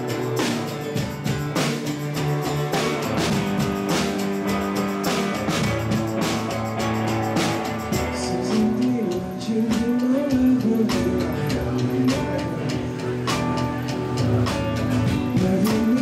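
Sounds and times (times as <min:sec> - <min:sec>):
drums: 0:00.0 - 0:16.0
electric guitar: 0:00.0 - 0:16.0
person singing: 0:07.8 - 0:16.0.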